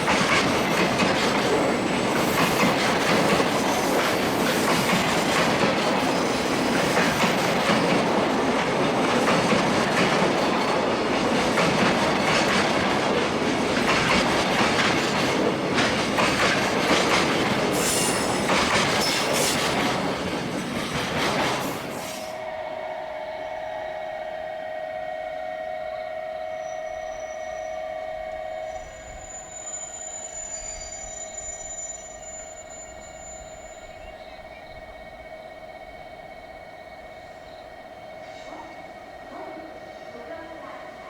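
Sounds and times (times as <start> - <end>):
freight train rolling past: 0.0 - 41.0
wheel squeal: 17.7 - 19.5, 25.9 - 34.1.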